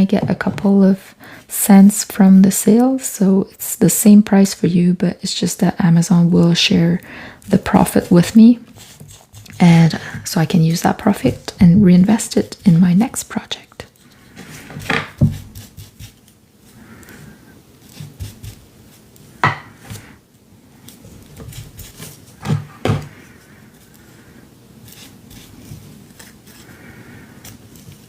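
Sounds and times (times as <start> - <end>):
paper rubbing and brushing: 7.5 - 10.3, 14.0 - 17.0, 17.8 - 19.1, 20.8 - 22.5, 24.8 - 28.0.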